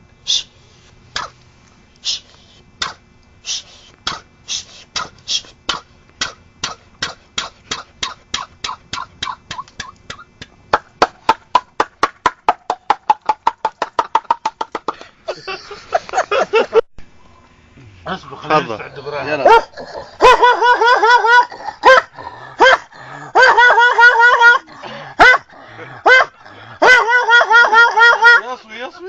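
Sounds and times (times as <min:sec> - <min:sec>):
person making mouth clicks: 0:01.2 - 0:11.2.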